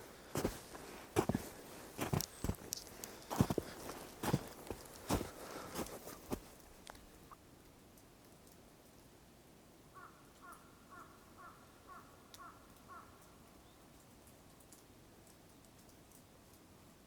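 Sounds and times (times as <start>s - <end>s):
crow cawing faintly: 9.9s - 13.5s.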